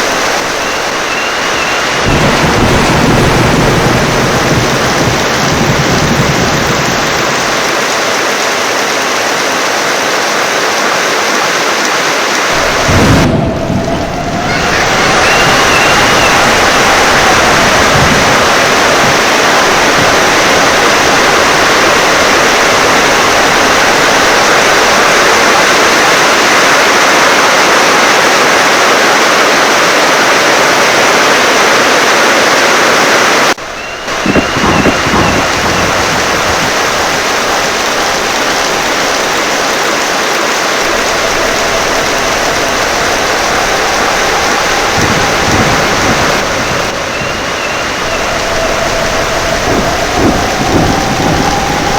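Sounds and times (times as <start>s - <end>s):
low rumble of thunder: 0.0s - 8.1s, 12.5s - 26.0s, 33.6s - 51.9s
heavy rain pouring: 0.0s - 51.9s.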